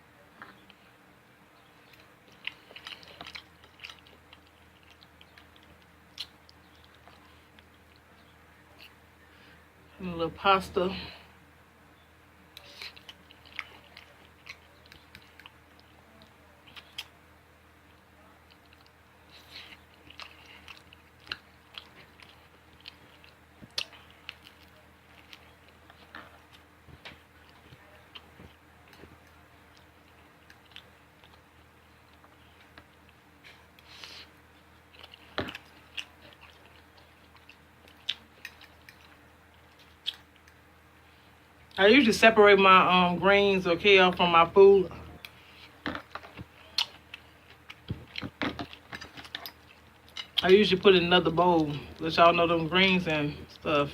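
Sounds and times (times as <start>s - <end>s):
person chewing food: 1.6s - 9.6s, 12.5s - 41.8s, 44.9s - 50.5s.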